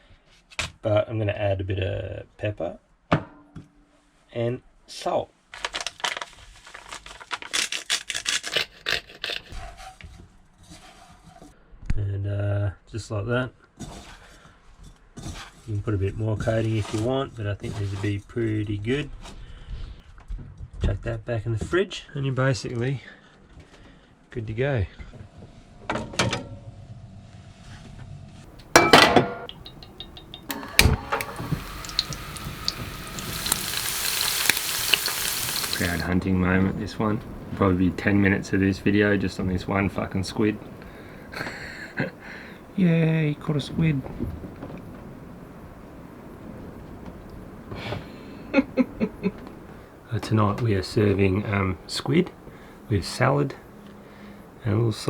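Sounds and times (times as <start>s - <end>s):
kitchen handling knocks: 28.6s - 31.3s
hot oil sizzling in a pan: 28.6s - 44.7s.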